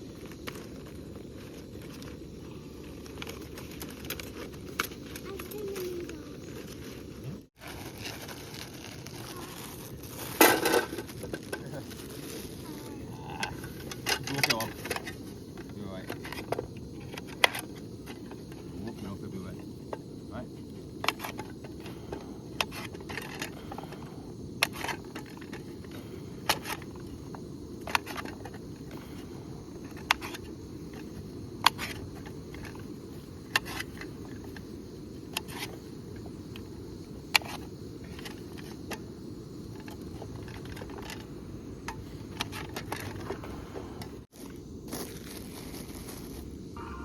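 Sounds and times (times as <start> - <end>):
campfire crackling and popping: 0.0 - 47.0.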